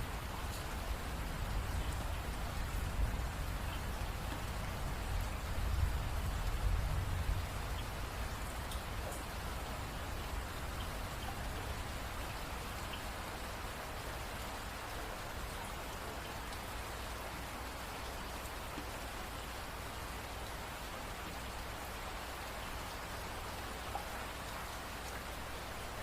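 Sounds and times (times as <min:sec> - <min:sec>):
steady rain falling: 0:00.0 - 0:26.0
raindrops ticking: 0:00.1 - 0:13.2.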